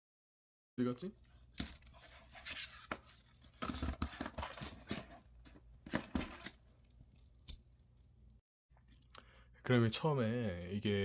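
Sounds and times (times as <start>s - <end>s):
metal tools clinking and rattling: 1.2s - 8.2s.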